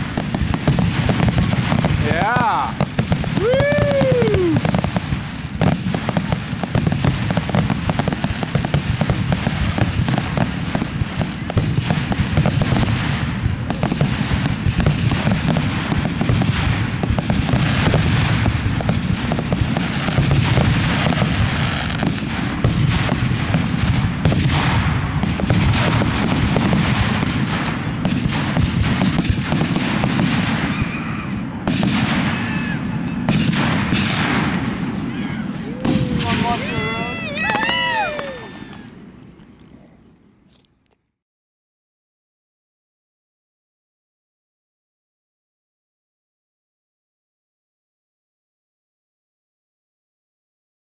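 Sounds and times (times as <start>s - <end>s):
fireworks booming and crackling: 0.0s - 40.0s.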